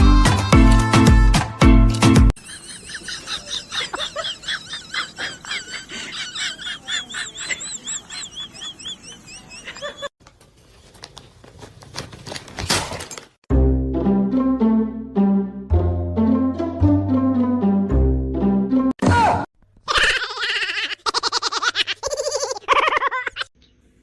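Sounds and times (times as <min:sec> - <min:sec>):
high-pitched chirping calls: 0:06.8 - 0:10.1.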